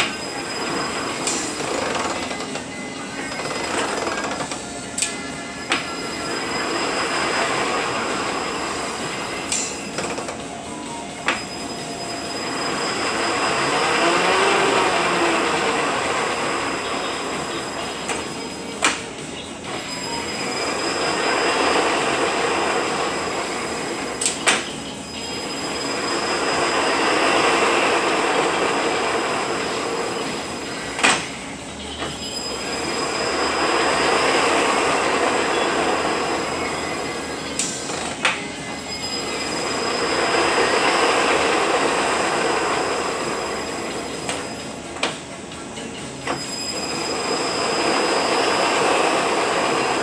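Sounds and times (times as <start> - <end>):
truck transmission gear noise: 0.0 - 38.8.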